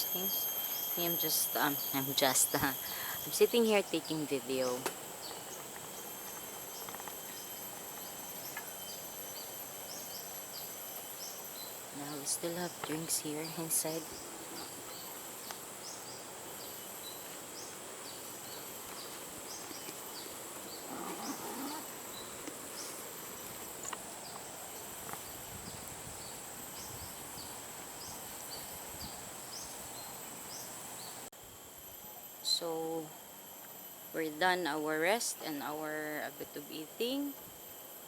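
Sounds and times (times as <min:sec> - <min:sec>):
short high insect chirps: 0:00.0 - 0:03.6
high-pitched insect drone: 0:00.0 - 0:38.0.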